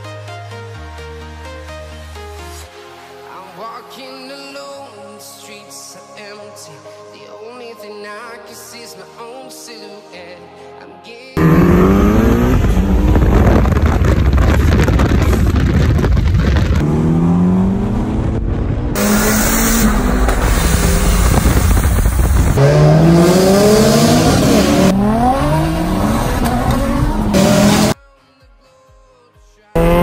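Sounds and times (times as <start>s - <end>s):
car engine accelerating: 11.4s - 28.0s, 29.8s - 30.0s.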